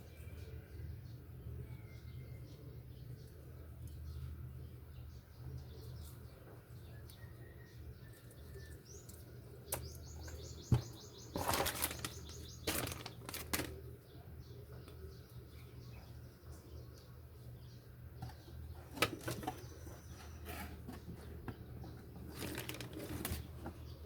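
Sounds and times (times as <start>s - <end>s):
packaging rustling and clicking: 11.3s - 13.8s, 22.2s - 23.7s.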